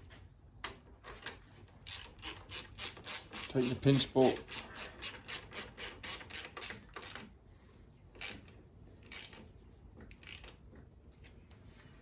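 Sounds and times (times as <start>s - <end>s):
ratchet wrench clicking: 1.8s - 7.2s, 9.1s - 9.4s, 10.1s - 10.5s.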